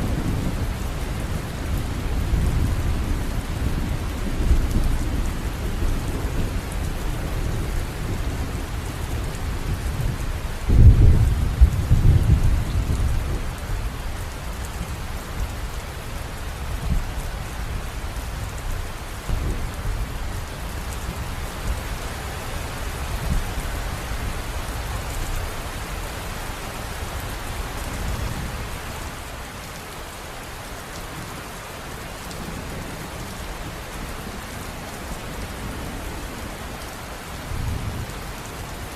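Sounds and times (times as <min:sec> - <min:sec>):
river water rushing: 0:28.7 - 0:34.8.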